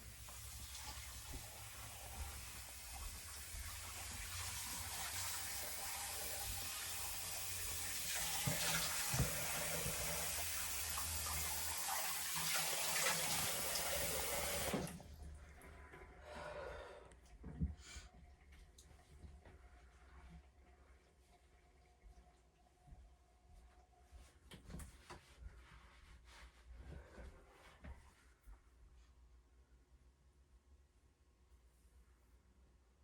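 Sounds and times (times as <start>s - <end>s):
tap running into sink: 7.9s - 15.0s.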